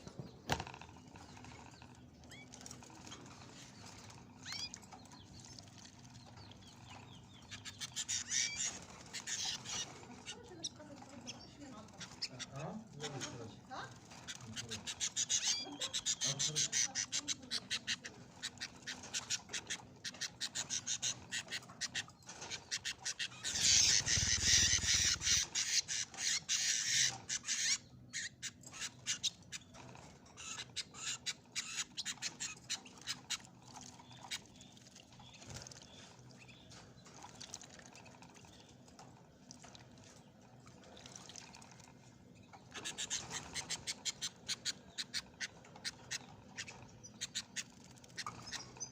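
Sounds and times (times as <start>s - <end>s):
birds splashing in water: 0.0s - 48.9s.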